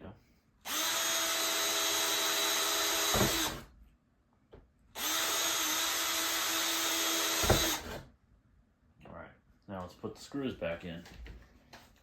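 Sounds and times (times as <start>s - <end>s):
electric drill whining: 0.6s - 3.7s, 5.0s - 8.0s.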